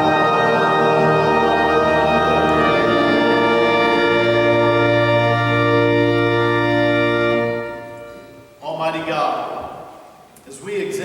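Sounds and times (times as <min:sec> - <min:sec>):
organ playing slow chords: 0:00.0 - 0:10.4.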